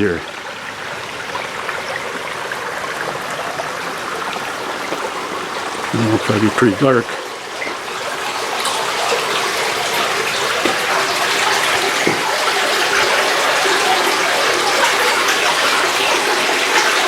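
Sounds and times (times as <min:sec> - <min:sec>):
spring water splashing echoing: 0:00.0 - 0:17.0.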